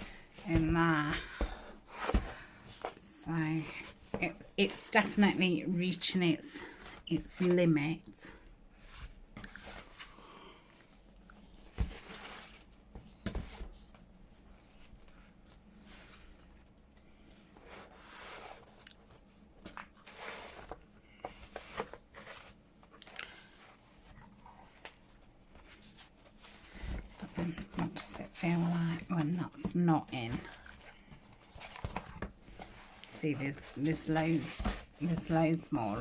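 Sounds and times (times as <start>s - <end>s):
paper rustling and crinkling: 17.6s - 36.0s.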